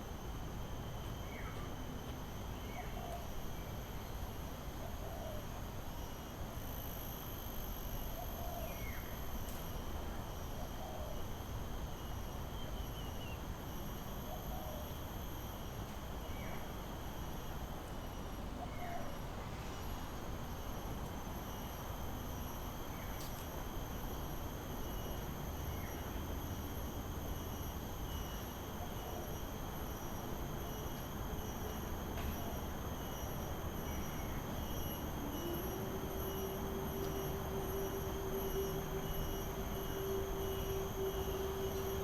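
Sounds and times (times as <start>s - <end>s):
insect trilling: 32.5s - 42.0s.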